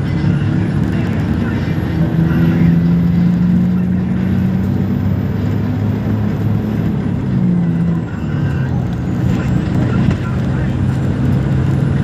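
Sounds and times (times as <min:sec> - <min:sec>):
vehicle engine with road noise: 0:00.0 - 0:12.0.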